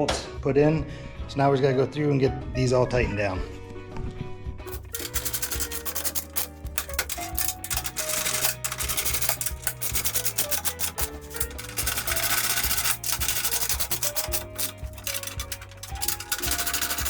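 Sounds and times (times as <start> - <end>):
ratchet wrench clicking: 4.7 - 17.0.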